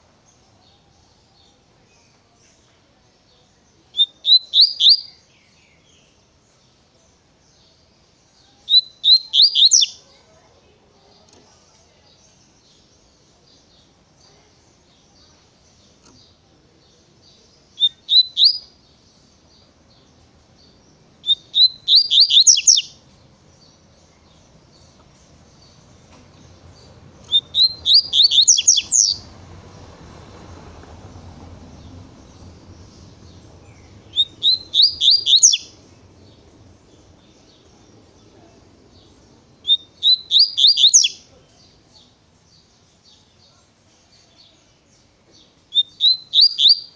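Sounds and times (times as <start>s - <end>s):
faint bird chirping: 0.0s - 46.9s
bird singing whistled notes: 3.4s - 6.6s, 7.5s - 10.0s, 14.9s - 23.0s, 26.6s - 29.3s, 31.8s - 38.4s, 39.0s - 43.4s, 45.4s - 46.9s.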